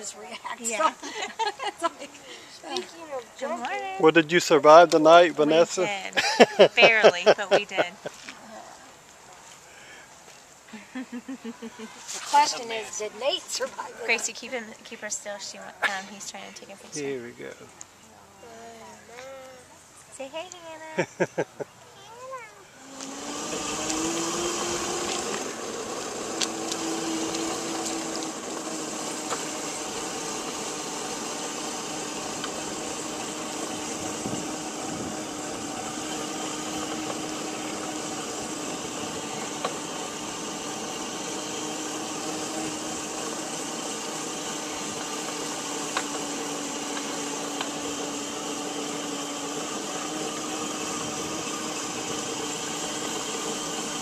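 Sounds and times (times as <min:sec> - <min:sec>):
motor hum: 0:03.4 - 0:08.1, 0:22.8 - 0:54.0.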